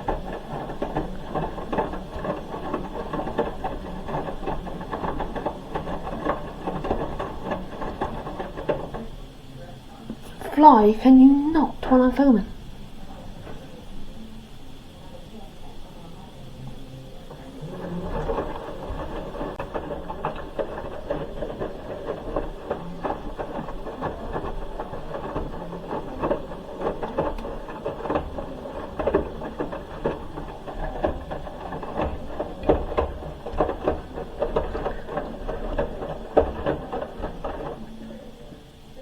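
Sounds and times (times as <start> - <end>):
laundry tumbling in drum: 0.0 - 39.0
washing machine motor rumble: 0.0 - 39.0.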